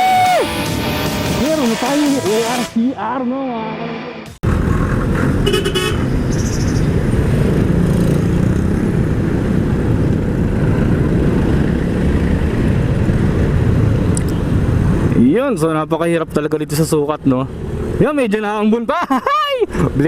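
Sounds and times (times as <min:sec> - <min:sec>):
motor scooter road noise: 0:00.0 - 0:18.1
wind rush: 0:04.4 - 0:15.2
vehicle horn toot: 0:05.4 - 0:06.1.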